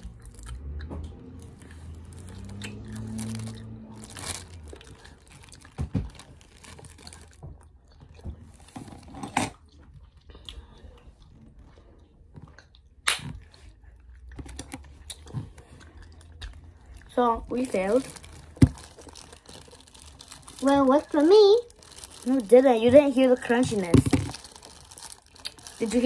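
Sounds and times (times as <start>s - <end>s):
chewing and crunching: 0.0s - 26.0s.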